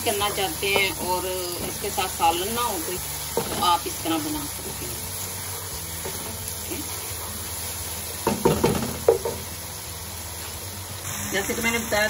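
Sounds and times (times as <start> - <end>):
chicken sizzling in oil: 0.0 - 12.0
wooden spatula knocking a pot: 0.6 - 1.0, 8.2 - 9.5.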